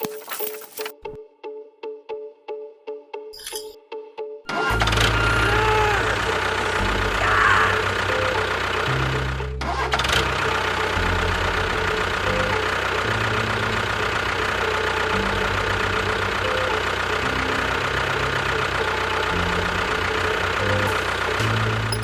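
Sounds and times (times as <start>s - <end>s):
engine-like drone: 4.7s - 22.0s.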